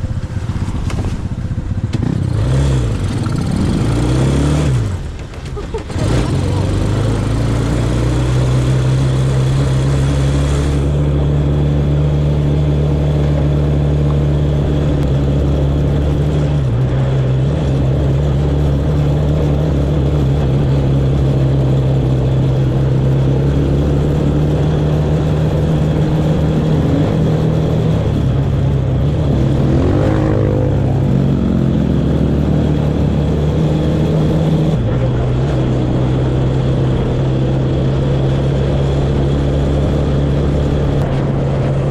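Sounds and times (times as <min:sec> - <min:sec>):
off-road vehicle engine running: 0:00.0 - 0:41.9.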